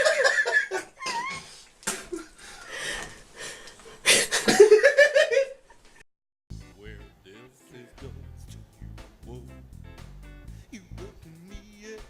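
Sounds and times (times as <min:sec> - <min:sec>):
people laughing: 0:00.0 - 0:02.3, 0:04.1 - 0:05.6.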